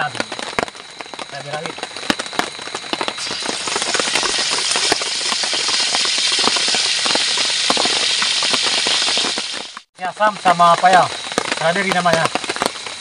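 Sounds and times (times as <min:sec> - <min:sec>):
chilies sizzling in hot oil: 0:01.2 - 0:13.0.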